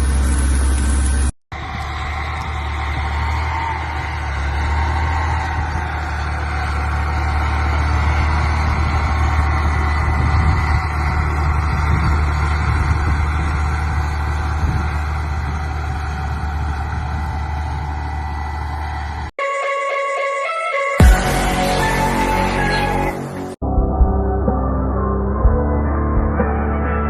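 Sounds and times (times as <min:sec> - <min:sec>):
tractor engine droning: 0:00.0 - 0:19.6.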